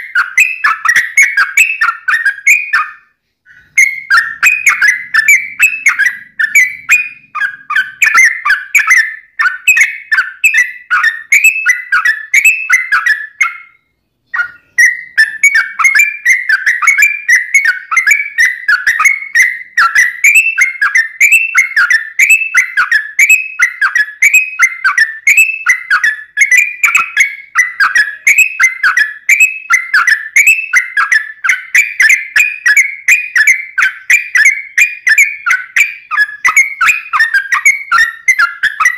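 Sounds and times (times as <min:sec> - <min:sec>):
bird bubbling whistled song: 0:00.0 - 0:38.9.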